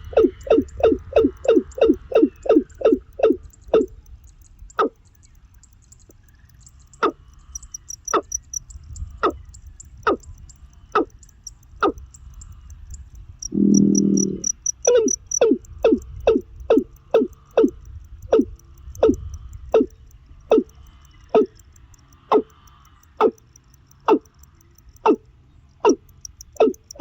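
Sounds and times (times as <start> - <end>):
low steady humming tone: 0.0 - 27.0
fast high-pitched twitter: 13.4 - 15.4.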